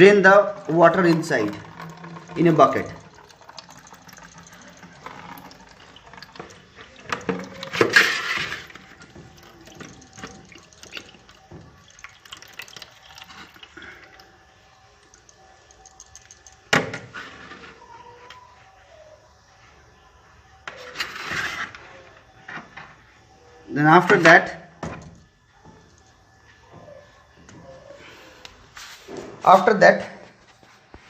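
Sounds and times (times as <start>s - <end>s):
water dripping into bucket: 0.0s - 17.2s, 24.0s - 26.5s
water splashes and clicks: 0.6s - 14.4s, 15.0s - 16.9s.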